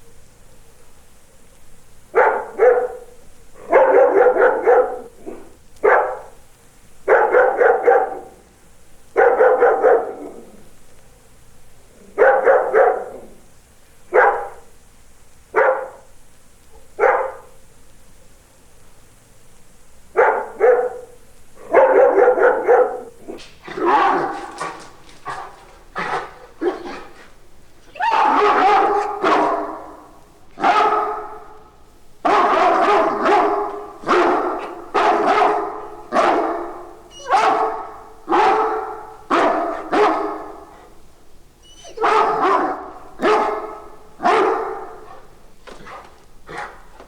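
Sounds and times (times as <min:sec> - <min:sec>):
dog barking: 0:02.1 - 0:06.4, 0:07.0 - 0:08.4, 0:09.1 - 0:10.6, 0:12.0 - 0:13.4, 0:14.1 - 0:14.7, 0:15.5 - 0:16.2, 0:16.8 - 0:17.6, 0:20.1 - 0:41.0, 0:41.6 - 0:47.0.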